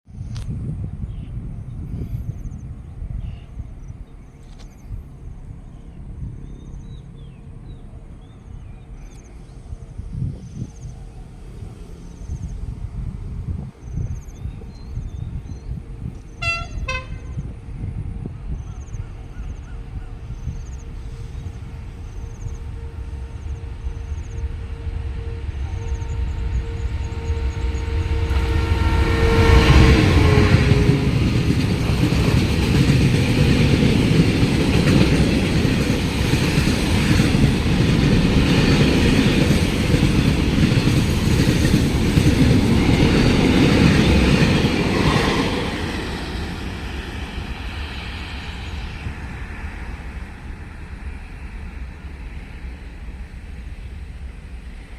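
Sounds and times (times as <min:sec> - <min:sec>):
freight train rumbling and clattering: 0:00.3 - 0:54.9
train horn blast: 0:16.3 - 0:17.5, 0:22.2 - 0:31.4.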